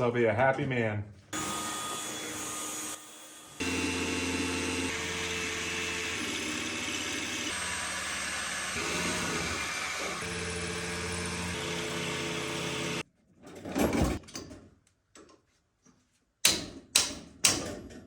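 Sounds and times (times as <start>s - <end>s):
hammer drill boring into concrete: 1.4s - 13.0s.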